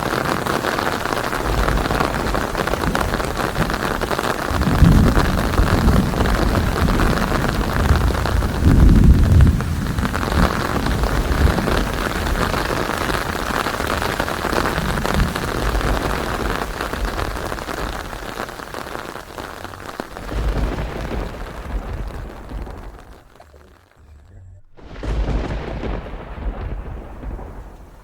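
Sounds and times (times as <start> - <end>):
heavy rain falling: 0.0 - 28.0
thunder rolling: 0.0 - 28.0.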